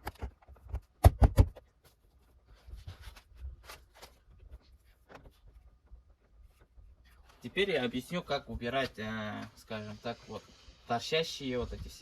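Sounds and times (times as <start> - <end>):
plastic handling noises: 0.0 - 7.6.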